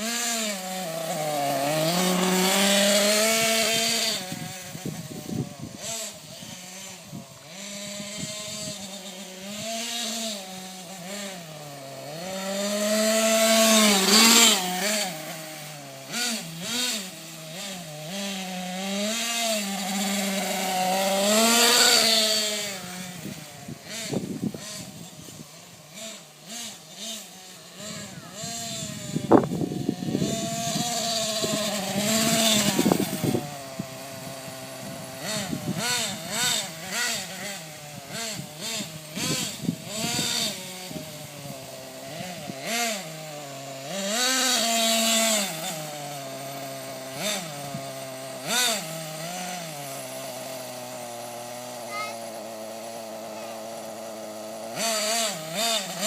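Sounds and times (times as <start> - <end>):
small nitro engine revving: 0.0 - 56.0.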